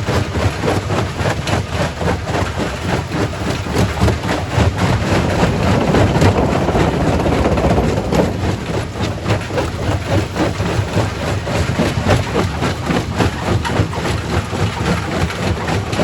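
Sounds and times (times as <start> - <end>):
low machine rumble: 3.2 - 16.0
rocks clattering and grinding: 3.5 - 16.0.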